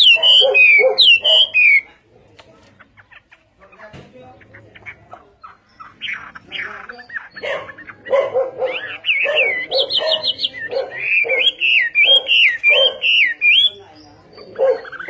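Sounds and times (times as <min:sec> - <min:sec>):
songbird whistling phrases: 0:00.0 - 0:01.9, 0:05.7 - 0:15.0.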